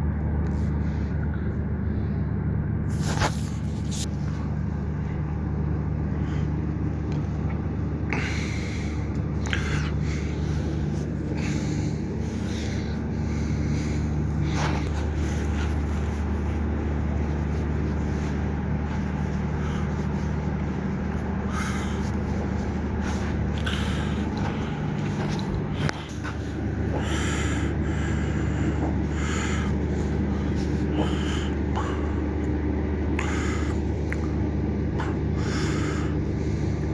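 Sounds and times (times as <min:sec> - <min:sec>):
low machine hum: 0:00.0 - 0:36.9
short scraping or puffing noises: 0:02.9 - 0:04.2.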